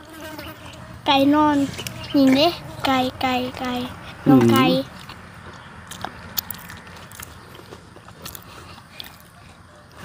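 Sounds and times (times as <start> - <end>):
people chewing and biting: 3.6 - 10.0.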